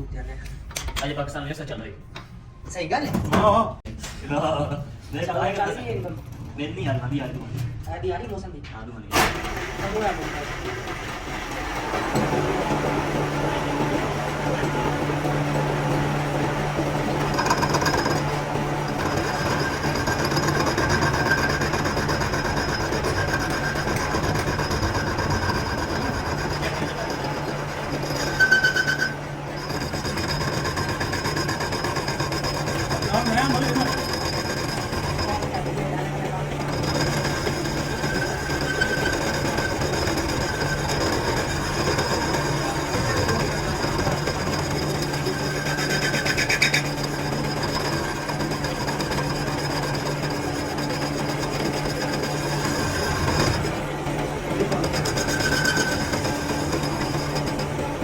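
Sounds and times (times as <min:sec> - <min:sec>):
workshop machinery humming: 0:09.1 - 0:58.0
fast continuous rasping: 0:11.7 - 0:58.0
high-pitched squeal: 0:17.1 - 0:35.6.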